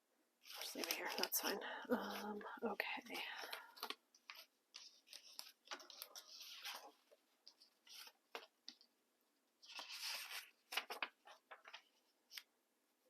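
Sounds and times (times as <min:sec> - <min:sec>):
paper rustling: 0:00.4 - 0:02.4, 0:03.0 - 0:08.9, 0:09.6 - 0:12.5.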